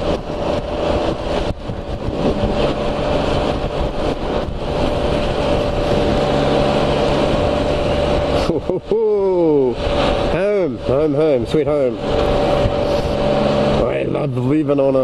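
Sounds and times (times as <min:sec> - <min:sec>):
motorcycle engine running: 0:00.0 - 0:14.9
steady tone: 0:00.0 - 0:14.9
wet road noise: 0:00.0 - 0:15.0
wind: 0:00.0 - 0:15.0.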